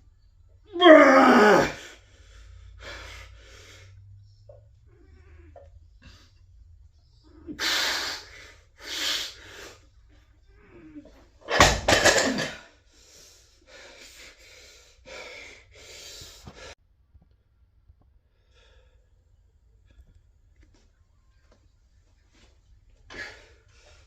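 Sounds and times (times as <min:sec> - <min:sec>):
person straining breaths and grunts: 0:00.7 - 0:12.7.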